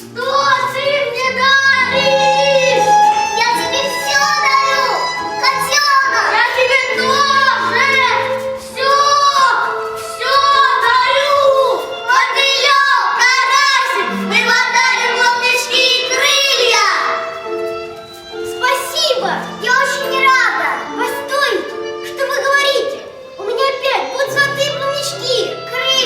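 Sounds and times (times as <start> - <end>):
child singing with vibrato: 0.0 - 17.1
instrumental accompaniment: 0.0 - 26.0.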